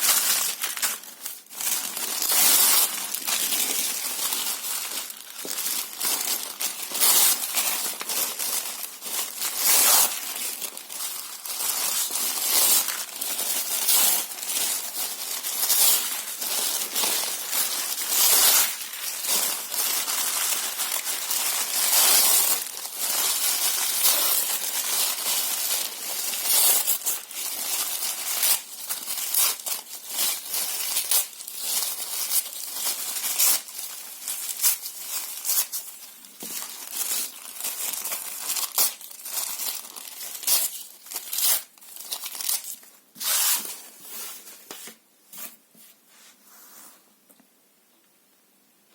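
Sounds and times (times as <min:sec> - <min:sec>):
paper and cardboard tearing: 0:04.7 - 0:35.8, 0:36.5 - 0:43.7.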